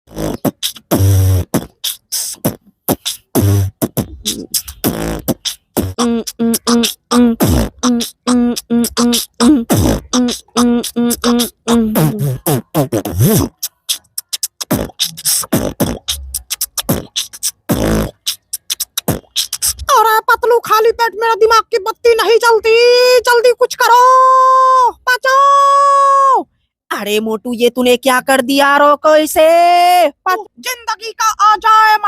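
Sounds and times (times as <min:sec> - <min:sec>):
man beatboxing: 0:00.1 - 0:25.5.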